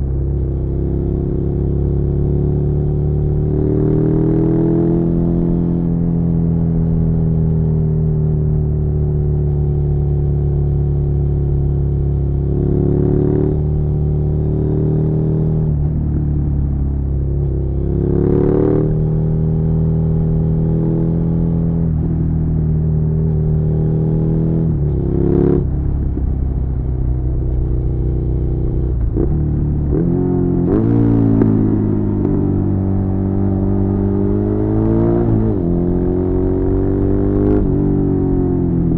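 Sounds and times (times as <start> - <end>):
motorcycle engine running: 7.2 - 34.6.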